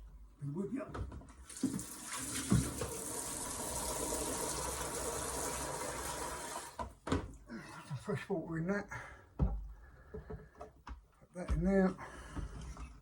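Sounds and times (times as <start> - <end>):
tap water running into container: 1.4 - 6.9.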